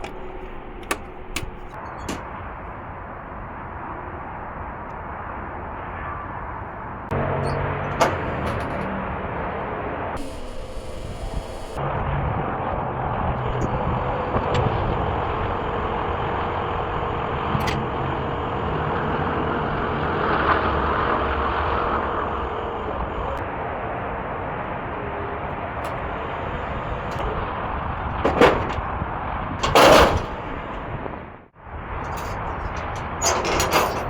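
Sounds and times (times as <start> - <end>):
vehicle engine humming: 0.0 - 1.8, 7.1 - 34.0
faint steady whine: 10.2 - 27.8.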